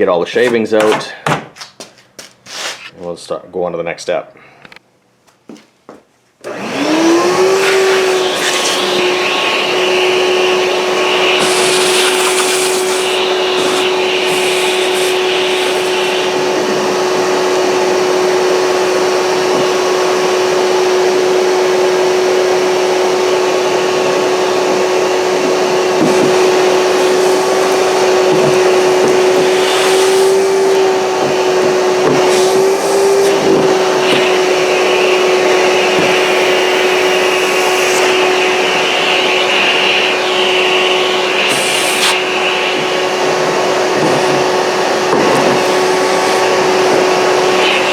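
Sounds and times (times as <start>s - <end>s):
shop vac running: 0.0s - 2.9s, 6.4s - 47.9s
rushing hiss of suction: 6.8s - 17.7s, 24.0s - 47.9s.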